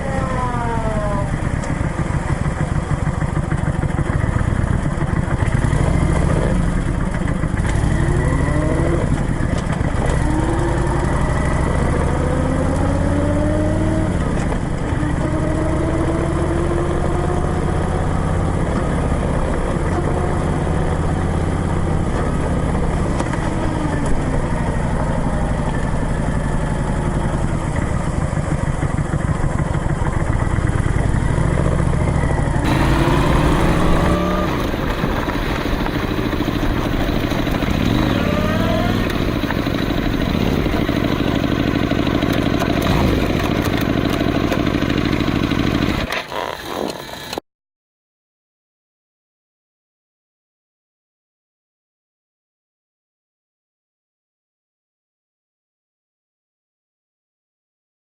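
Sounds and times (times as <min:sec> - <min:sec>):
motorcycle engine accelerating: 0:00.0 - 0:47.4.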